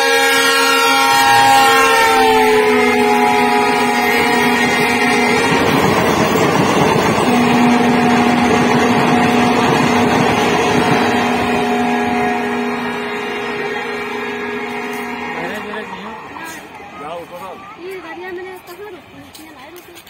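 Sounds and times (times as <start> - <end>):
wheels rushing on rail: 0.0 - 20.0
droning tone: 7.3 - 16.7.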